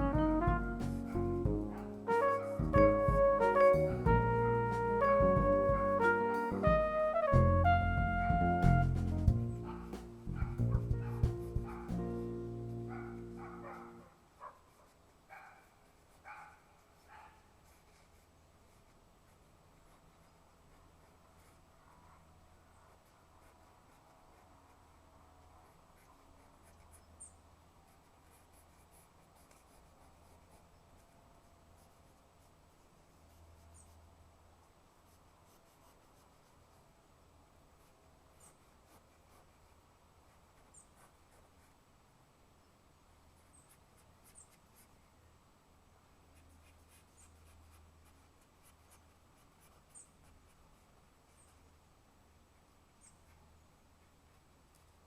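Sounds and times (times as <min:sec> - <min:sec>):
low steady hum: 0:00.0 - 0:14.2
pencil scratching on paper: 0:08.8 - 0:12.1, 0:12.9 - 0:27.3, 0:27.9 - 0:34.0, 0:34.9 - 0:36.8, 0:37.8 - 0:41.8, 0:43.4 - 0:45.0, 0:46.4 - 0:51.7.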